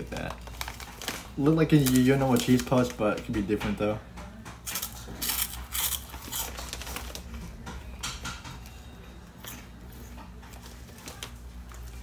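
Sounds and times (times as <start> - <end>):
crunchy snack chewing: 4.7 - 7.1.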